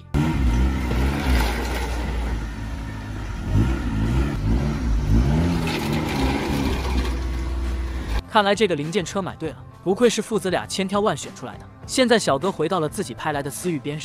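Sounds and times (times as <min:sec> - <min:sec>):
car engine accelerating: 0:00.0 - 0:08.2
heavy low rumble: 0:00.8 - 0:08.2.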